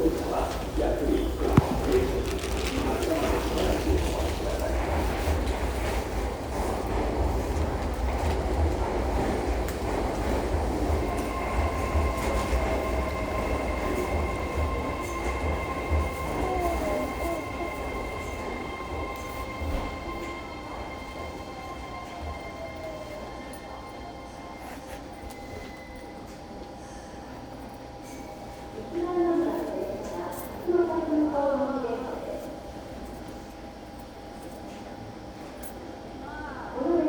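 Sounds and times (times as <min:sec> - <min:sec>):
train running rumble: 0:00.0 - 0:25.5.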